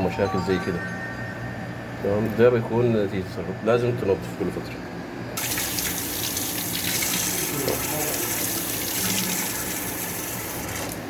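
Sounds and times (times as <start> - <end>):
tap water running: 5.4 - 11.0.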